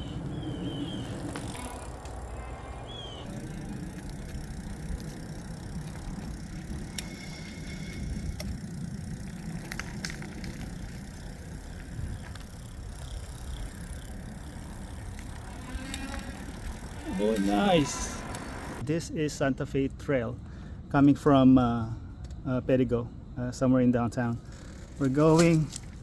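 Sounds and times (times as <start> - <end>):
bike tyre noise on pavement: 0.0 - 18.8
bike clicks and rattles: 0.2 - 18.8, 24.4 - 26.0.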